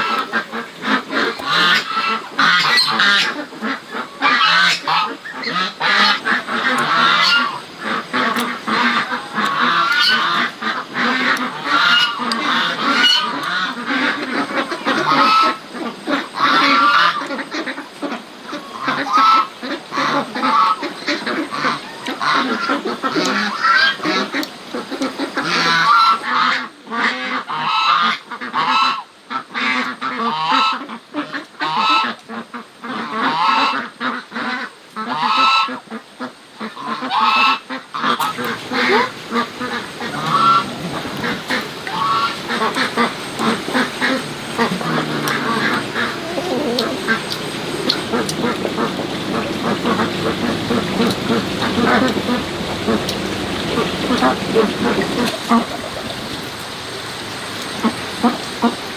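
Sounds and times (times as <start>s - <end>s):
waterfowl honking: 0.0s - 57.0s, 57.6s - 58.9s.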